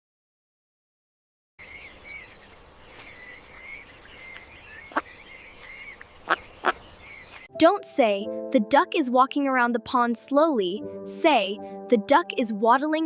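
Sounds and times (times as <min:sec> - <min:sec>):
frogs calling: 0:01.6 - 0:07.5
outdoor background noise: 0:01.6 - 0:07.5.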